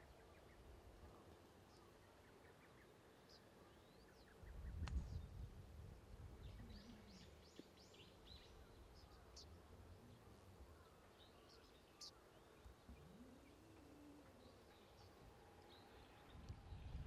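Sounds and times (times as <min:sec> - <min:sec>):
faint bird chirps: 0:06.4 - 0:17.0.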